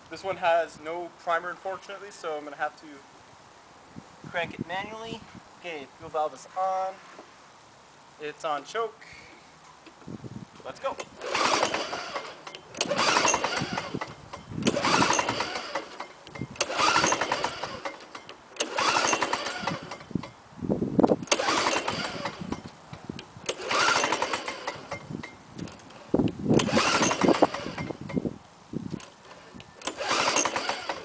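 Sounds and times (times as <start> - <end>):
mower engine recoil pulls: 10.8 - 20.4, 21.1 - 28.3, 28.9 - 31.0.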